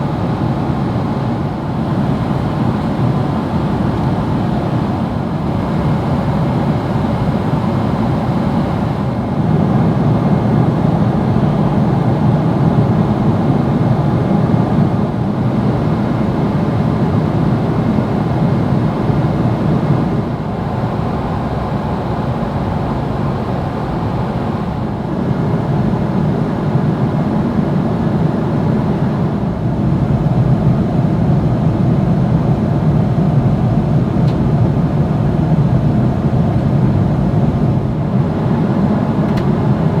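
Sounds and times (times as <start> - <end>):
airliner cabin noise: 0.0 - 40.0.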